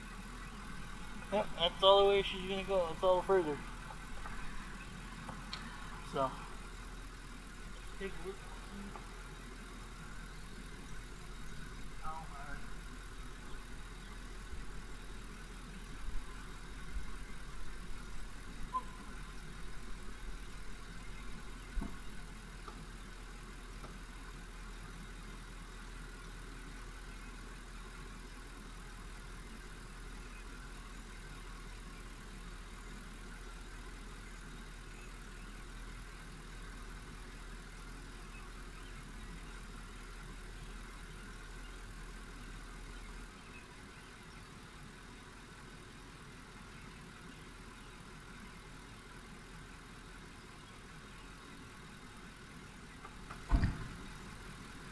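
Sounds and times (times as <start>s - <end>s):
pickup engine idling: 0.0s - 54.9s.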